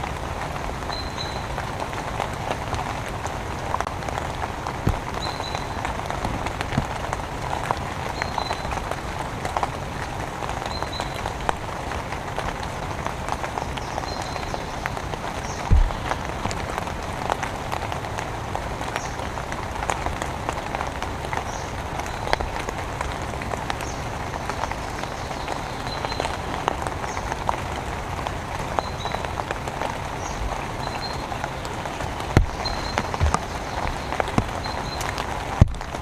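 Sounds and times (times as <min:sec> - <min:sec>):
raindrops ticking and tapping: 0:00.0 - 0:36.0
steady rain: 0:00.0 - 0:36.0
heavy drop thumps: 0:15.7 - 0:16.2.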